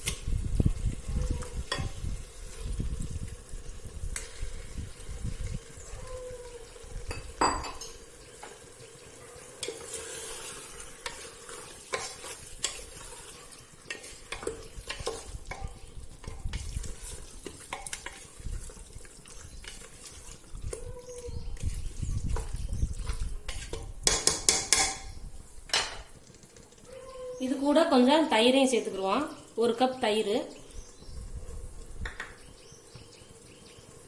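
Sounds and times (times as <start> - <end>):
light sizzle: 0.0 - 34.0
utensil scraping and knocking pan: 9.6 - 18.3, 22.4 - 26.1.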